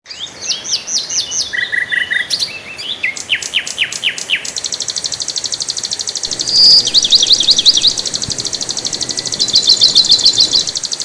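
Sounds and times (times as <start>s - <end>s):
high-pitched bird trill: 6.3s - 11.0s
songbirds singing and calling: 6.3s - 11.0s.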